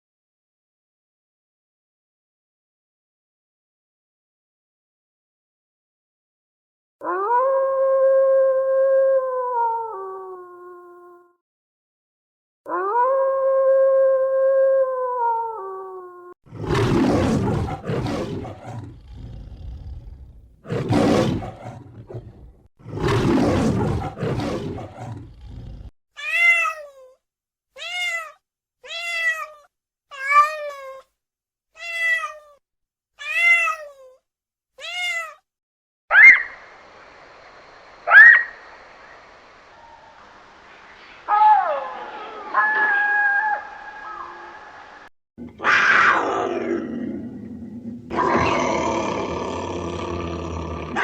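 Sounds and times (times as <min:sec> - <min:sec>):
animal howl: 0:07.0 - 0:11.1, 0:12.7 - 0:25.9, 0:41.3 - 0:44.6, 0:45.4 - 0:51.0
big cat roars: 0:16.5 - 0:25.9, 0:45.4 - 0:51.0
cat meowing: 0:26.2 - 0:27.2, 0:27.8 - 0:31.1, 0:31.8 - 0:32.6, 0:33.2 - 0:34.2, 0:34.8 - 0:35.4
faint steady hiss: 0:36.4 - 0:42.4.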